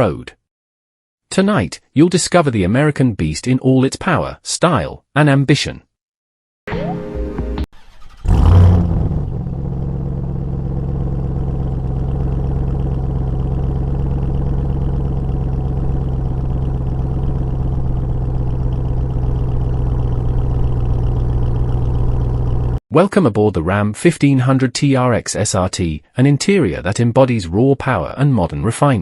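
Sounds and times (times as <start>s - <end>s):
engine revving and idling: 7.8s - 22.8s.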